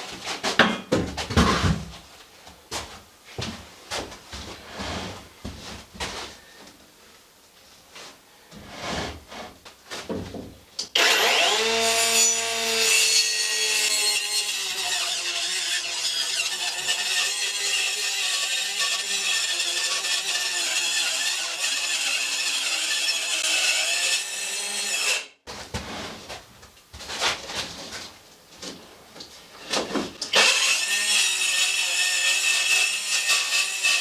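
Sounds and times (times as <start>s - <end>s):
power tool cutting: 11.0s - 25.3s, 30.3s - 34.0s.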